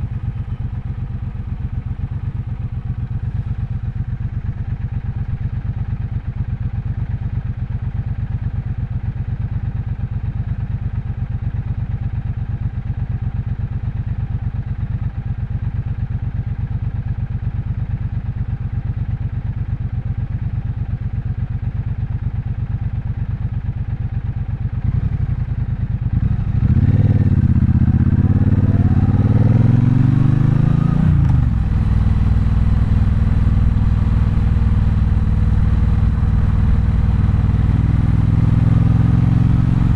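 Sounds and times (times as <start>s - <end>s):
motorcycle engine running and revving: 0.0s - 39.9s.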